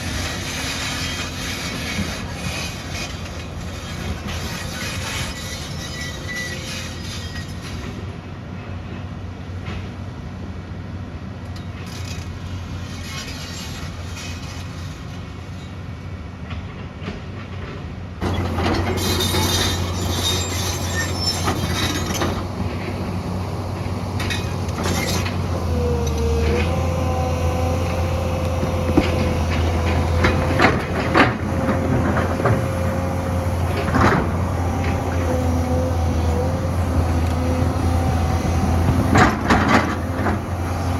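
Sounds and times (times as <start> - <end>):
excavator diesel engine running: 0.0 - 6.5, 17.6 - 40.9.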